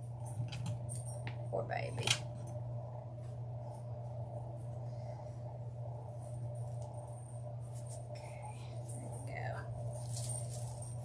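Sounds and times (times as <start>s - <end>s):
steady low hum: 0.0s - 11.0s
rustling and handling noises: 0.1s - 11.0s.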